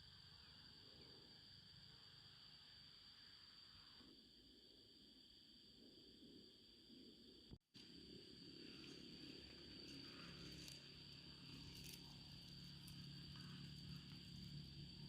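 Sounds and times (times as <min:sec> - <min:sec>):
low hum: 0:05.7 - 0:15.0.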